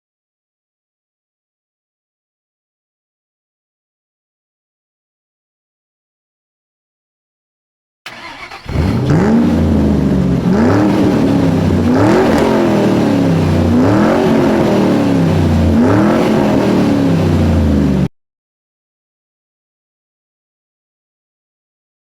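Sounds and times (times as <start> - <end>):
engine revving: 8.1 - 18.1.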